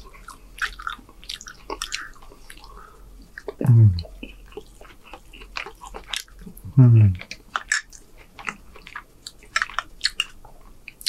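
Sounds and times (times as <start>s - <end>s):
wet chewing smacks and clicks: 0.0s - 11.0s
person humming mm: 3.6s - 4.3s, 6.5s - 7.3s.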